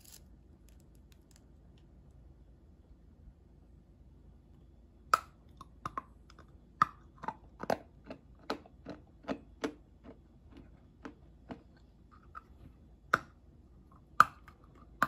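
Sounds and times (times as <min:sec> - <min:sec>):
candy stick crunching: 0:00.0 - 0:01.4.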